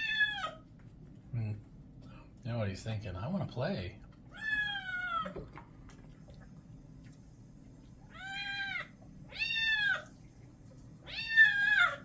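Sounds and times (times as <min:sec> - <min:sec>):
kitten meowing: 0:11.0 - 0:12.0.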